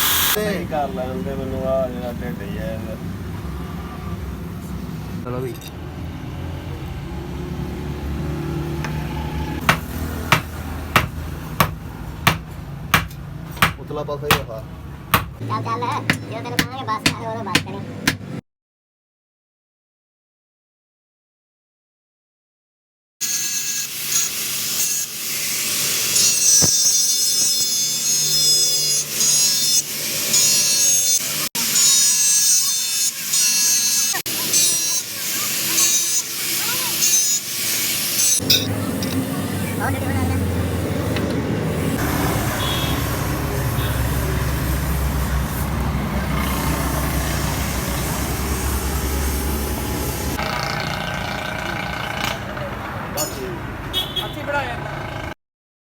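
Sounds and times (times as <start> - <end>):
power tool grinding steel: 0.0 - 0.4, 8.8 - 18.2, 23.2 - 42.4.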